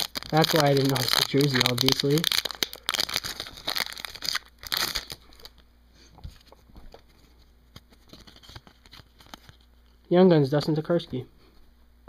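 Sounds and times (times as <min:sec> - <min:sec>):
cards being handled: 0:00.0 - 0:05.6, 0:06.2 - 0:10.0
wrapper crinkling and tearing: 0:00.0 - 0:05.6, 0:07.8 - 0:09.7.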